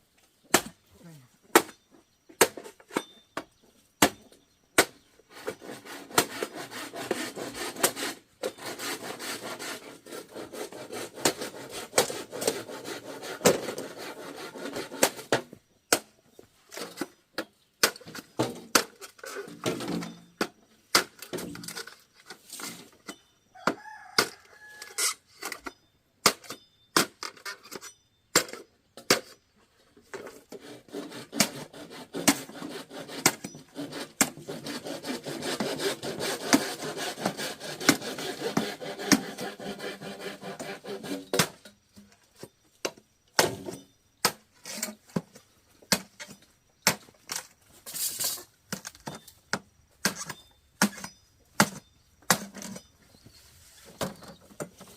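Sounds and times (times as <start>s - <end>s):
saw rasping through wood: 5.3s - 15.3s, 30.2s - 41.7s.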